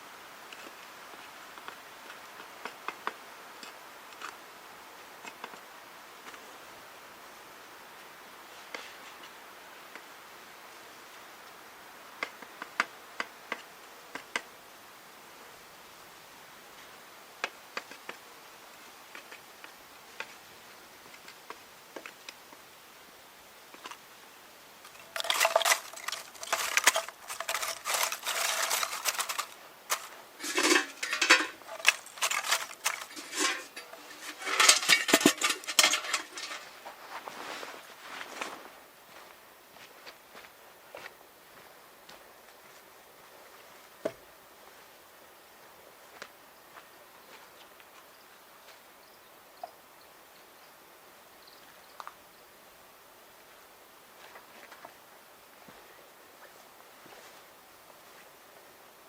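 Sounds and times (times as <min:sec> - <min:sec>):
hard small objects clinking: 0:24.9 - 0:36.8
rattling and clattering: 0:24.9 - 0:36.8.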